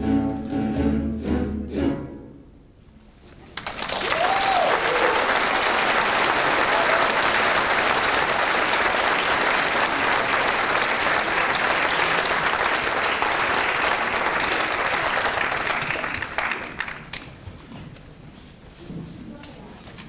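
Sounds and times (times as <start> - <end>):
audience applauding: 3.6 - 17.4.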